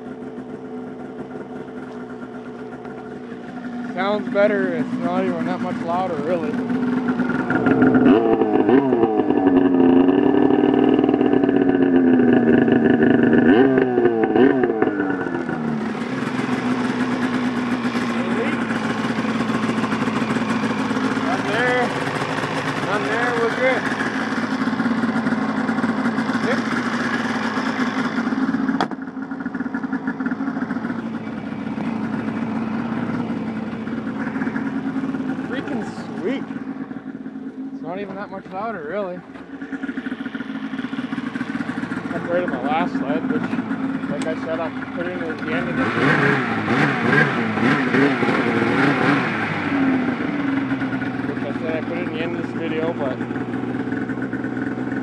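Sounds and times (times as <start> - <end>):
snowmobile engine revving: 3.8 - 28.9, 30.8 - 37.0, 41.2 - 53.2.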